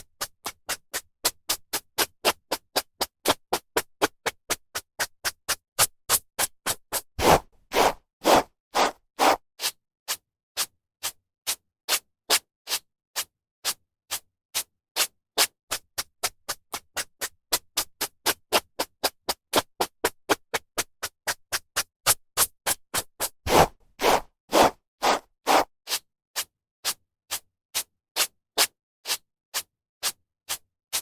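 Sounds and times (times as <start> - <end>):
hairbrush strokes through hair: 7.2 - 9.4, 23.5 - 25.7.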